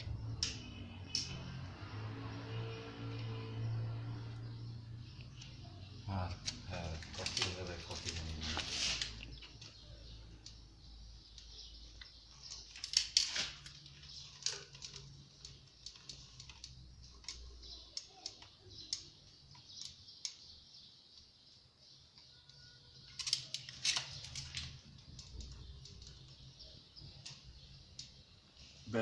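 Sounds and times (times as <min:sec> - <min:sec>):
tools tapping on metal parts: 0:11.3 - 0:20.5, 0:23.0 - 0:26.5.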